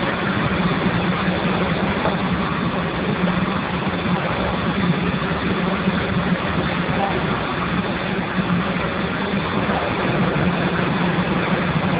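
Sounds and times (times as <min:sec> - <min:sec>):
low hum: 0:00.0 - 0:11.9
steam boiler rushing: 0:00.0 - 0:11.9.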